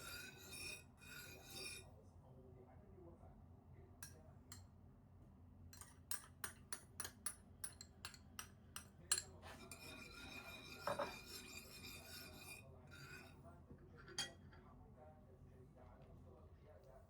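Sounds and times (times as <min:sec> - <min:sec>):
utensil scraping: 0:00.0 - 0:01.8, 0:09.4 - 0:13.4.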